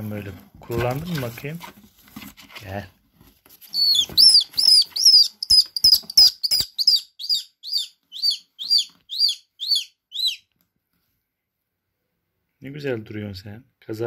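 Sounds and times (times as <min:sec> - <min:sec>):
swift chirping: 0:03.7 - 0:10.5.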